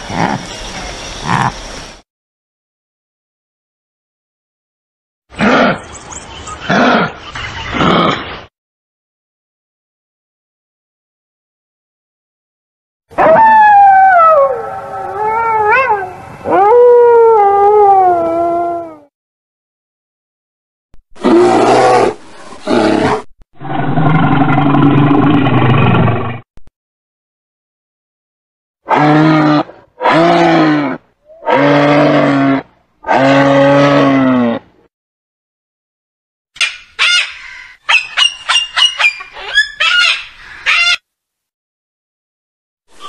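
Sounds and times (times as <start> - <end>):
wolves howling: 13.2 - 19.1
animal calling: 37.0 - 41.0.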